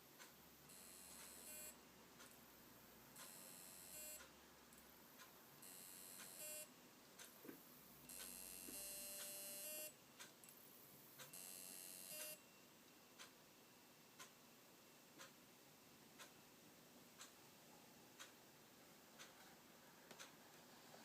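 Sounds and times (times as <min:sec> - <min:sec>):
hard drive buzzing chirps: 0:00.7 - 0:01.8, 0:03.2 - 0:04.2, 0:05.6 - 0:06.7, 0:08.1 - 0:10.6, 0:11.2 - 0:12.6.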